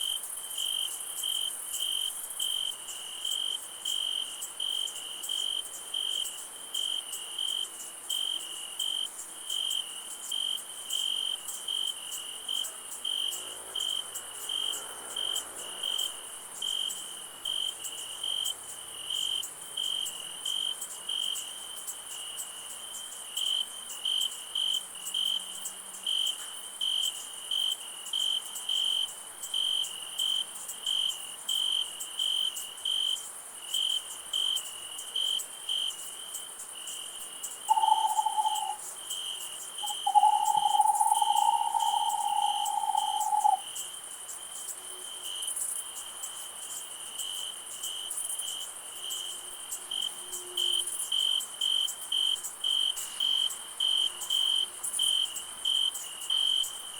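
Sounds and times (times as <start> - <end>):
crickets chirping: 0.0 - 56.9
high insect hiss: 0.0 - 56.9
whistle-like tone: 37.7 - 38.8, 39.8 - 43.6.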